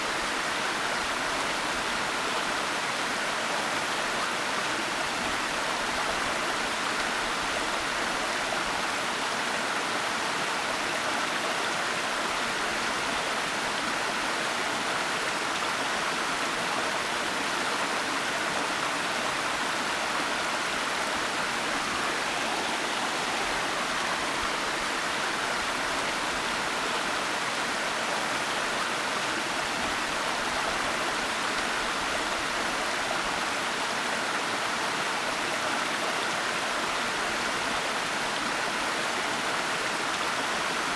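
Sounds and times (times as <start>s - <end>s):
waterfall rushing: 20.0s - 27.2s.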